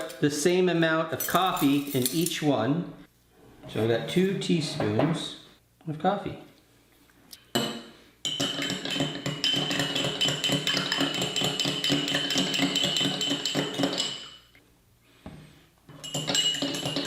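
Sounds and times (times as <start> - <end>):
spoon clinking in mug: 16.0 - 17.0.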